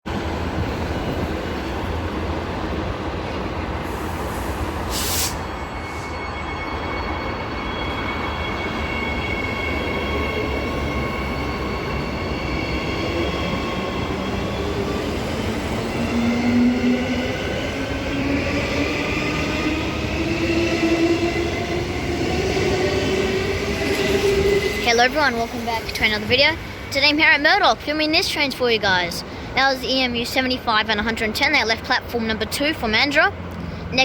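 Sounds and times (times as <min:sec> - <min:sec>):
rail and wheel noise: 0:00.0 - 0:34.0
short hiss: 0:03.9 - 0:05.4.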